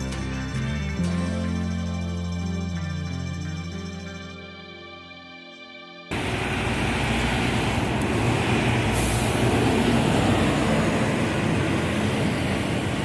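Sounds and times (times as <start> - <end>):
bus engines rumbling: 6.1 - 13.0.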